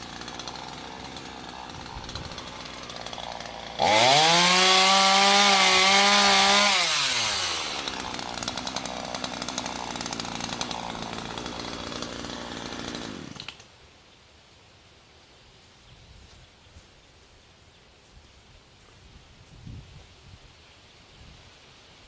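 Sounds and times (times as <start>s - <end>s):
chainsaw revving and idling: 0.0s - 13.6s.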